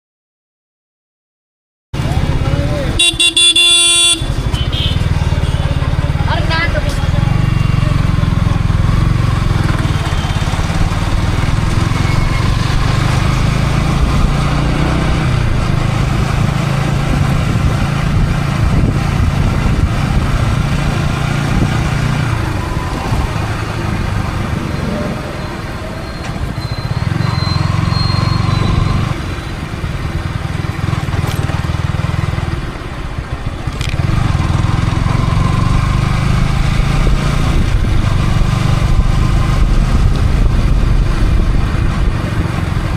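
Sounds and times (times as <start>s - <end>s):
motorcycle engine running: 2.0s - 24.8s, 25.6s - 42.9s
wind rush on microphone: 15.3s - 24.7s, 36.6s - 42.9s.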